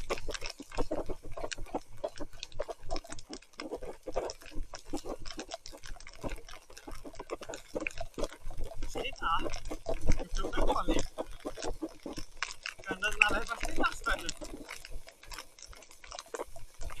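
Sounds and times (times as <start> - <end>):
bike rattling: 9.0 - 16.4
mountain bike squelching through mud: 12.8 - 14.4.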